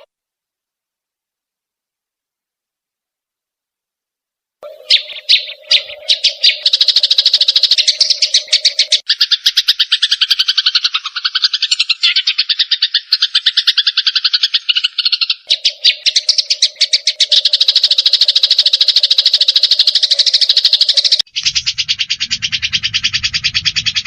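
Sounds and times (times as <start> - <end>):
rapid bird chatter: 4.6 - 24.0
steady low hum: 21.3 - 24.0.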